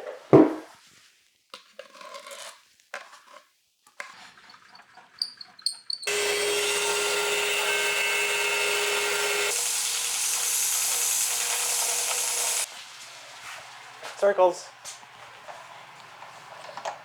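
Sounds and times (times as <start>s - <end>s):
electric power tool whining: 6.0s - 12.7s.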